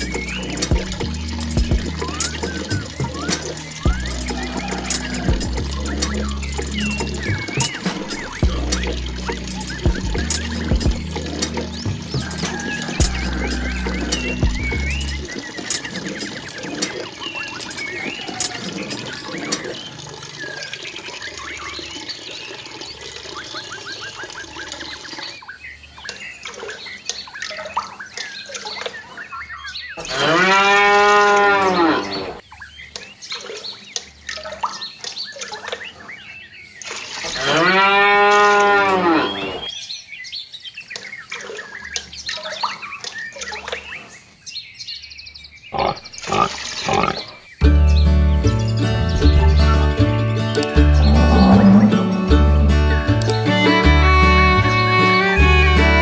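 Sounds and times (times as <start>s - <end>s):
cow mooing: 51.0s - 52.3s.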